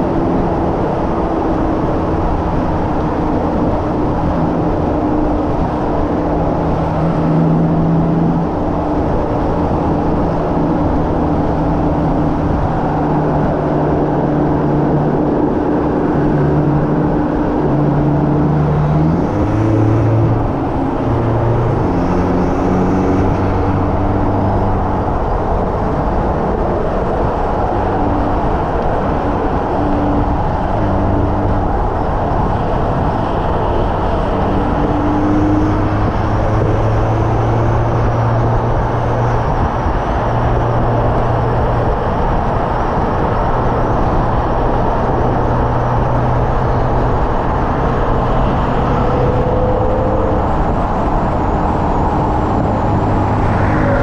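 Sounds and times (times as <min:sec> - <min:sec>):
road and wind noise: 0:00.0 - 0:54.0
car engine revving hard: 0:03.5 - 0:25.3.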